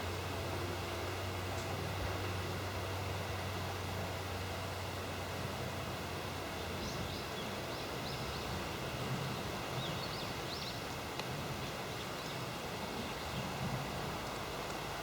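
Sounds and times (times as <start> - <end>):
faint constant tones: 0.0 - 15.0
steady background hiss: 0.0 - 15.0
small bird chirping: 9.3 - 10.8.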